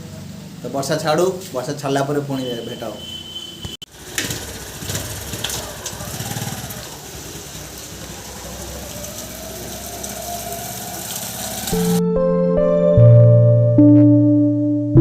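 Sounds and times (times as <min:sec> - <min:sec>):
vehicle engine running: 0:03.9 - 0:09.8.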